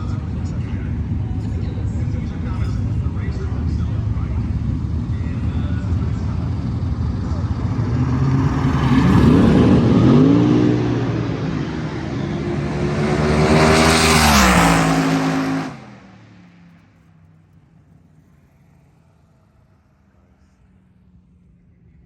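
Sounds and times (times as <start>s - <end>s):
dragster engines revving hard: 0.0s - 16.2s.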